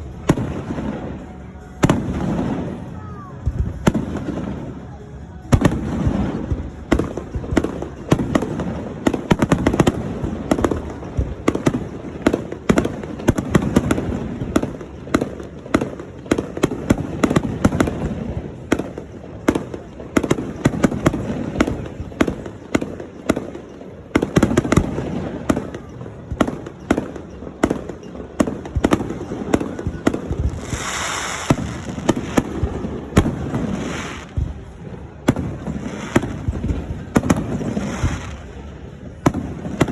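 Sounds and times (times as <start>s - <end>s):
fireworks bangs and booms: 0.0s - 39.9s.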